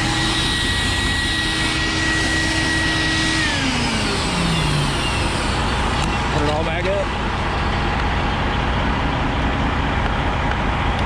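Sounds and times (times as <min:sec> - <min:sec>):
vacuum motor whining: 0:00.0 - 0:08.2.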